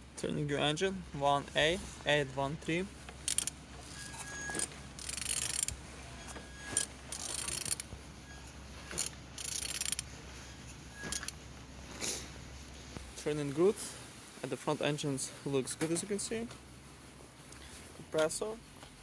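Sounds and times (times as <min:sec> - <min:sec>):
mechanical clicking and rubbing: 0:03.0 - 0:11.4
engine turned over by hand: 0:03.2 - 0:08.0, 0:08.8 - 0:10.1.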